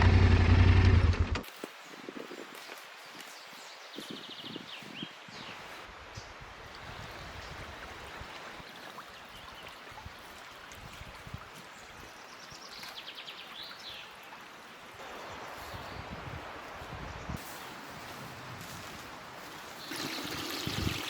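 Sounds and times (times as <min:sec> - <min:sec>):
river flowing: 0:05.8 - 0:16.8, 0:19.2 - 0:21.0
wind buffeting microphone: 0:15.4 - 0:21.0.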